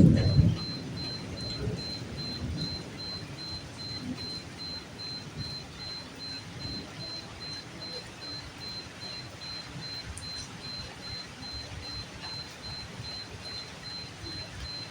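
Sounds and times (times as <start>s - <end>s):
low rumble: 0.0s - 2.8s
steady rainfall: 0.0s - 14.9s.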